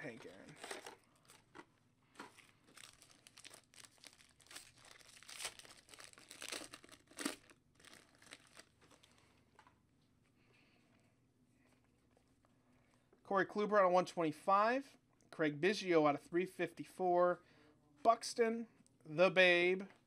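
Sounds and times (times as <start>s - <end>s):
plastic wrappers crinkling: 0.0s - 9.4s.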